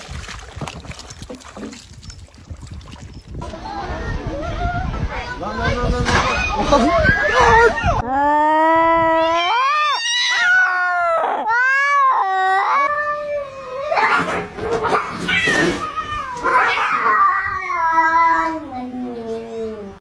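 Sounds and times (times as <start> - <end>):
cats yowling in a fight: 9.3 - 18.6.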